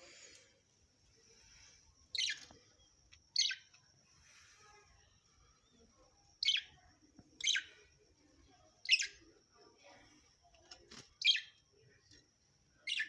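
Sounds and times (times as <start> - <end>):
parrot chirping: 2.1 - 2.5, 3.3 - 3.8, 6.4 - 6.8, 7.4 - 7.8, 8.8 - 9.3, 11.2 - 11.6.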